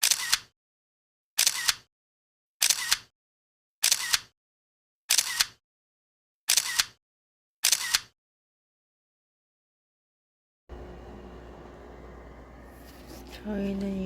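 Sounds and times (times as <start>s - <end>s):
camera shutter clicking: 0.0s - 0.5s, 1.4s - 1.9s, 2.6s - 3.1s, 3.8s - 4.3s, 5.1s - 5.6s, 6.5s - 7.0s, 7.6s - 8.1s.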